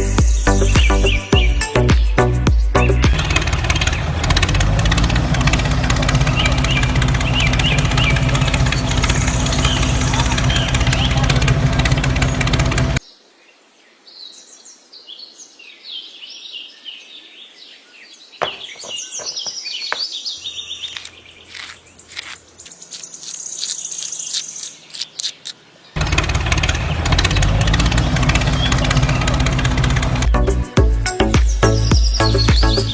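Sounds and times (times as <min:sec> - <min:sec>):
loud music: 0:00.0 - 0:03.4, 0:30.2 - 0:32.9
small birds chirping: 0:00.0 - 0:04.1, 0:05.3 - 0:13.1, 0:14.1 - 0:32.9.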